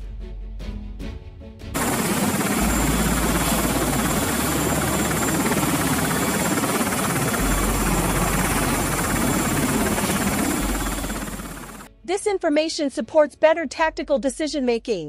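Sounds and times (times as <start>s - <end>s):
helicopter rotor and engine: 1.8s - 11.9s
high-pitched whine: 1.8s - 11.9s.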